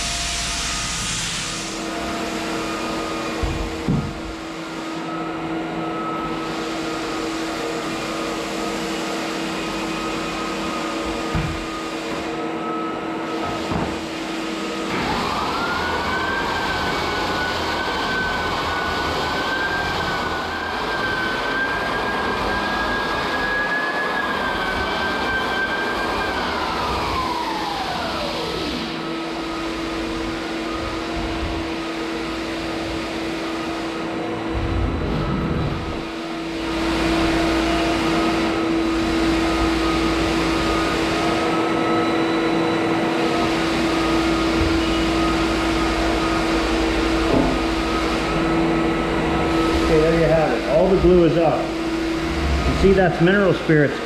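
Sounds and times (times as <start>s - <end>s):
steady machine hum: 0.0s - 23.4s, 24.0s - 54.0s
electric motor whining: 43.3s - 53.3s.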